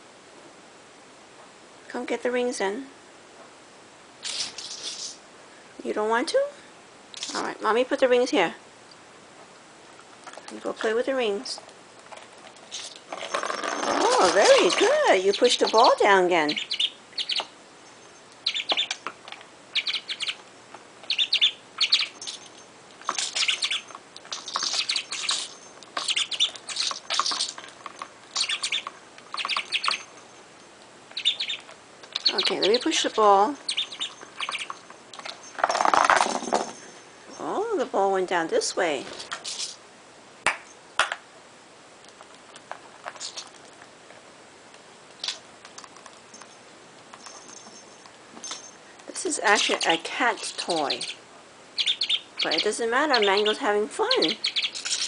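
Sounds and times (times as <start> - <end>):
budgerigar chirping: 13.8 - 17.6, 18.4 - 19.0, 19.7 - 20.4, 21.0 - 27.6, 28.3 - 30.2, 31.1 - 35.4, 43.2 - 43.5, 49.5 - 51.2, 51.8 - 55.0.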